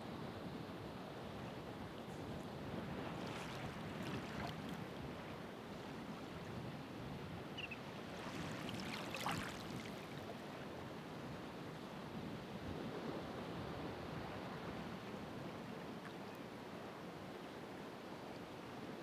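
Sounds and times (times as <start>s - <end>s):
ocean waves washing onto shore: 1.6s - 11.6s.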